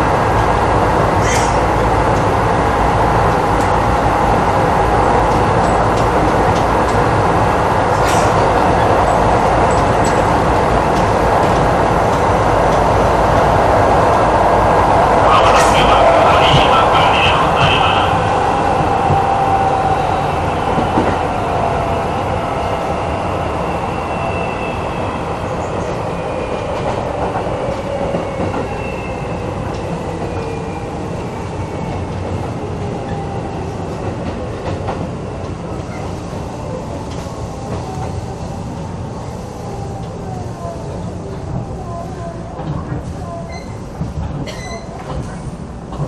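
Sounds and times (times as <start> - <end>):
train wheels rumbling on rails: 0.0 - 46.0
rail joint clicks: 1.1 - 2.5, 3.2 - 18.1, 20.7 - 21.3, 25.6 - 39.0, 40.9 - 46.0.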